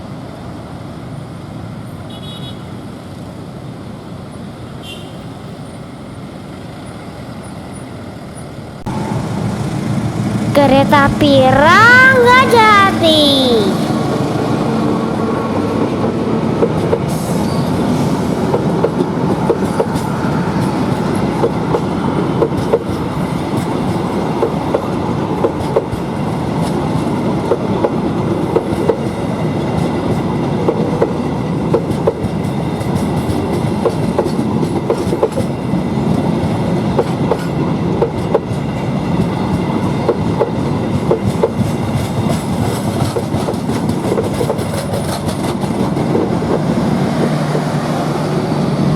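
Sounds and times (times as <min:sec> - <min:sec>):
train passing: 0:00.0 - 0:48.9
wheels clacking over rail joints: 0:18.5 - 0:47.8.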